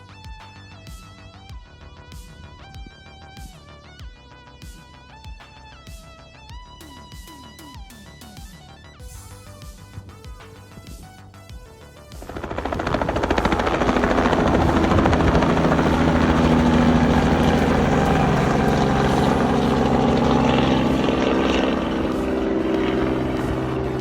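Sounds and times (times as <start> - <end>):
helicopter rotor beat: 11.6 - 24.0
piston engine hum: 12.2 - 24.0.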